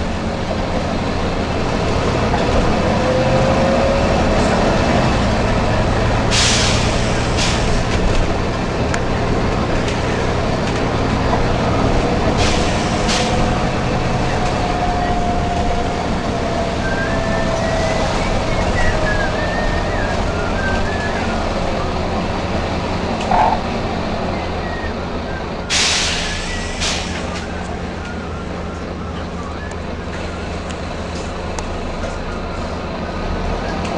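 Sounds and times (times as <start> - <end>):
bus diesel engine running: 0.0 - 33.9
pneumatic air hisses: 6.3 - 7.8, 12.4 - 13.4, 25.7 - 27.3.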